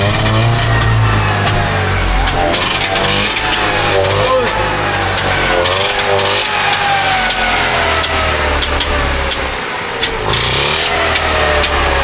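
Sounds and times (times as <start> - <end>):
two-stroke car engine running: 0.0 - 12.0
sharp clicks: 0.1 - 11.8.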